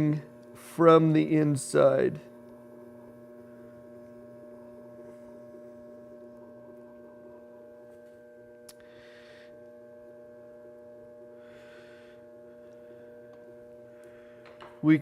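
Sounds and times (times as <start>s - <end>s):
potter's wheel motor humming: 0.0s - 15.0s.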